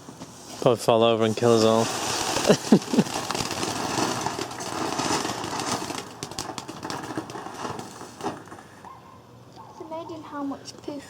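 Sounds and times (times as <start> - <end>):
firework fountain hissing and crackling: 0.0 - 8.9.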